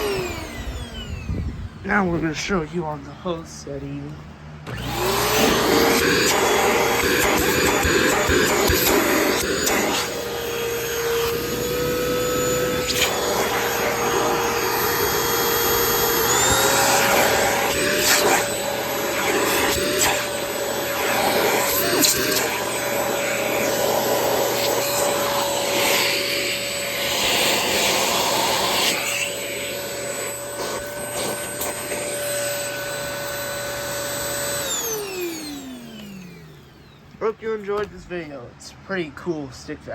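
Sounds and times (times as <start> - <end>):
vacuum motor whine: 0.0 - 2.7, 4.1 - 37.2.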